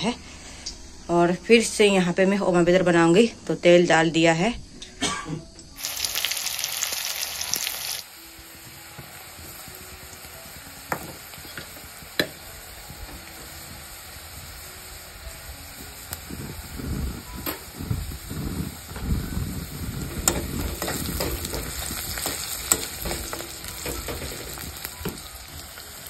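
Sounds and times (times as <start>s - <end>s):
onions sizzling in oil: 5.8s - 26.0s
stirring and scraping in pan: 18.9s - 25.9s.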